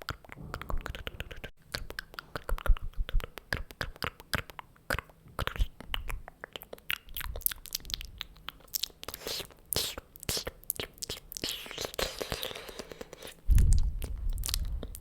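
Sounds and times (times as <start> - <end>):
tongue and lip clicks: 0.0 - 15.0
breathy puffs: 11.6 - 15.0.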